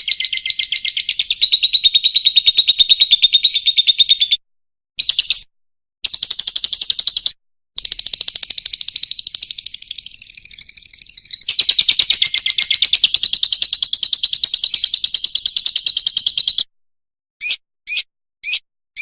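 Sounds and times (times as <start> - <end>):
lovebird chattering trill: 0.0 - 4.4, 6.0 - 16.6, 17.4 - 19.0
short bird calls: 17.4 - 19.0.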